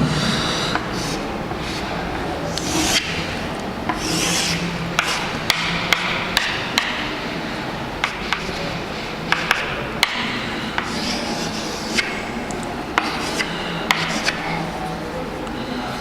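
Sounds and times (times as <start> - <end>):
writing tool scratching: 2.6 - 3.2, 3.9 - 5.2.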